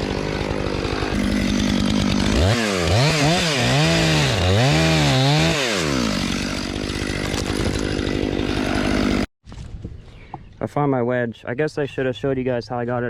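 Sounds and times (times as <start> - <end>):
chainsaw engine revving and idling: 0.0 - 9.3.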